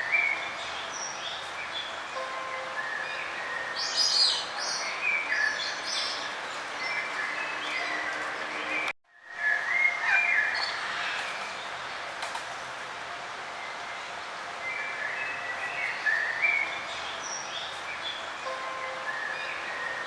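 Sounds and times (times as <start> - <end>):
outdoor background hiss: 0.0 - 7.8, 9.1 - 20.0
songbirds chirping: 0.0 - 20.0.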